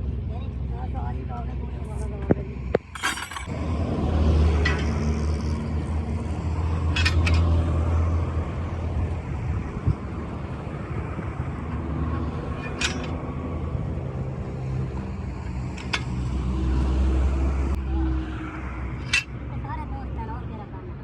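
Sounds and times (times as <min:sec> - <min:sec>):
heavy vehicle engine humming: 0:00.0 - 0:21.0
short sharp clinks: 0:02.8 - 0:03.5.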